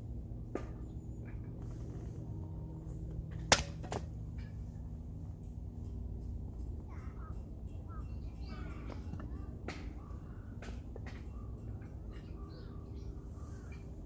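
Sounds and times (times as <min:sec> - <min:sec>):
steady low rumble: 0:00.0 - 0:14.0
birds chirping: 0:06.6 - 0:14.0.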